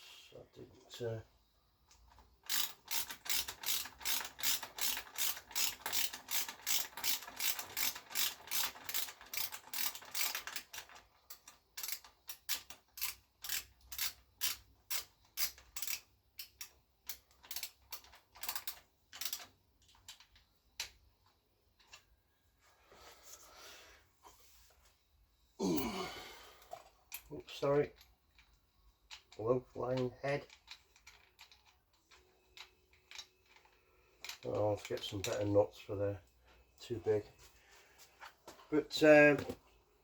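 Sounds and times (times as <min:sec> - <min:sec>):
ratchet wrench clicking: 0:01.9 - 0:21.0.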